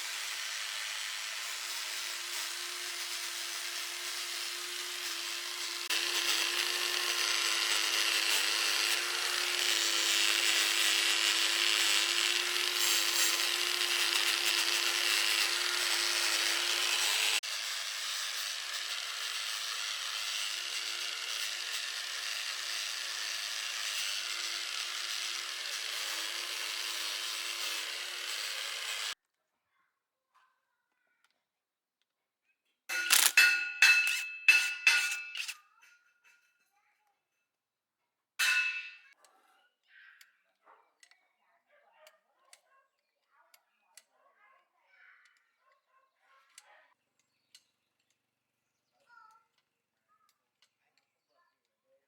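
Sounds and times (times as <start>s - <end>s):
abrasive rasping on workpiece: 0.0s - 29.2s, 32.9s - 35.6s
power tool motor hum: 0.0s - 29.2s.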